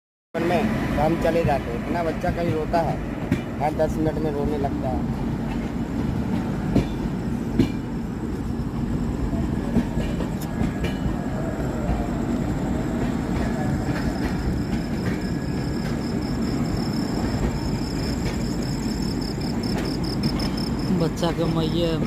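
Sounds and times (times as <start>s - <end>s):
train coach rumble: 0.4s - 22.0s.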